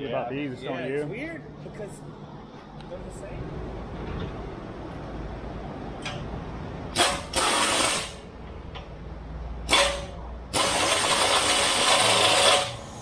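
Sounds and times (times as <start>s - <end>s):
power tool running: 9.7s - 12.8s.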